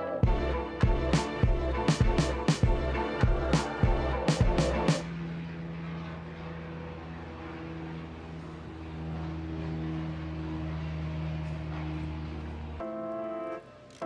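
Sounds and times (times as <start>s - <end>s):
music with a sharp beat: 0.2s - 5.1s
light aircraft piston engine droning: 0.2s - 14.0s.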